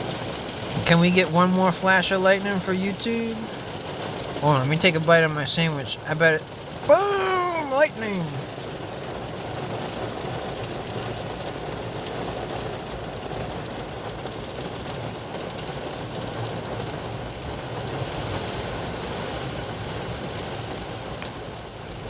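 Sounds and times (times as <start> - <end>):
heavy rain: 0.0 - 22.0.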